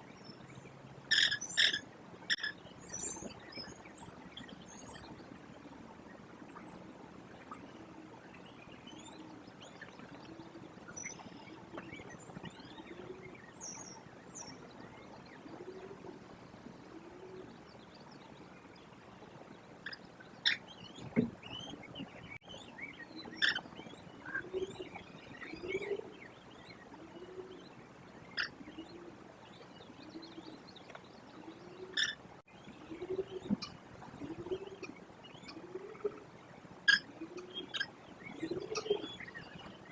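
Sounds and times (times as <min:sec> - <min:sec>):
small birds chirping: 0:00.0 - 0:39.9
low repeating bird call: 0:01.1 - 0:02.6
sharp bird calls: 0:01.1 - 0:05.1, 0:19.8 - 0:27.7.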